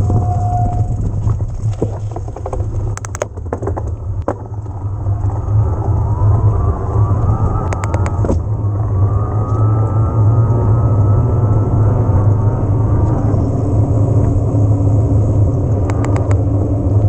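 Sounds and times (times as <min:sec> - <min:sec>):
e-bike motor whining: 0:00.0 - 0:03.1, 0:04.5 - 0:17.0
low riding rumble: 0:00.0 - 0:17.0
sharp clicks and knocks: 0:01.0 - 0:05.4, 0:07.6 - 0:08.5, 0:15.8 - 0:16.4.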